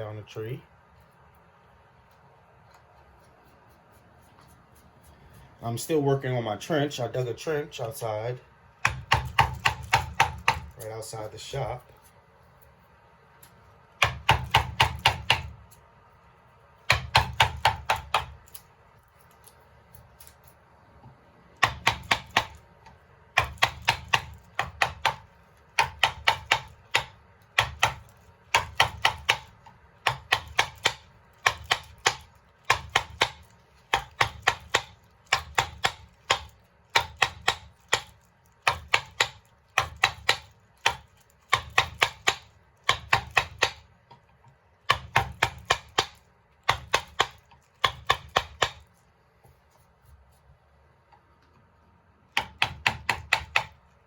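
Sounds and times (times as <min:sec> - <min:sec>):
mallet tapping chisel into wood: 0:08.8 - 0:10.8, 0:14.0 - 0:15.6, 0:16.9 - 0:18.4, 0:21.6 - 0:22.6, 0:23.4 - 0:43.8, 0:44.9 - 0:48.8, 0:52.3 - 0:53.8.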